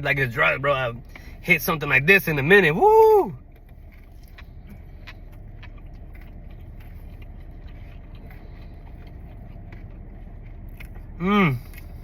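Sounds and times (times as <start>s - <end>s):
car engine idling: 0.0s - 12.0s
chewing clicks: 3.5s - 12.0s.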